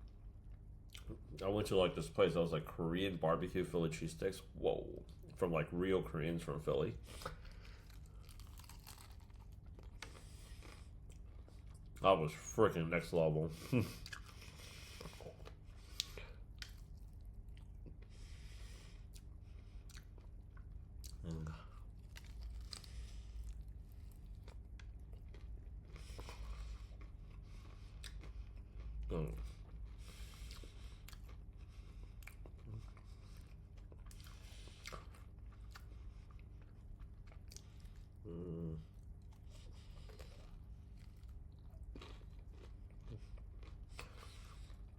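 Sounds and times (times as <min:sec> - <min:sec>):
person chewing food: 0:07.0 - 0:12.0, 0:13.6 - 0:44.9
person humming mm: 0:38.3 - 0:38.8.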